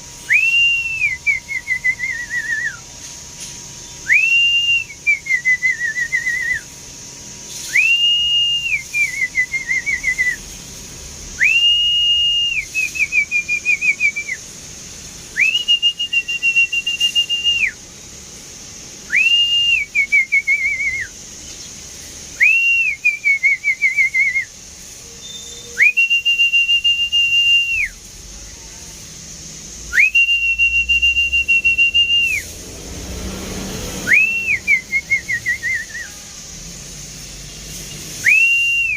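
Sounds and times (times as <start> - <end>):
person whistling a trilling call: 0.2 - 2.9, 3.9 - 6.7, 7.5 - 10.5, 11.4 - 14.5, 15.3 - 17.8, 19.1 - 21.7, 22.4 - 28.0, 29.8 - 32.6, 33.9 - 36.4, 37.8 - 38.9.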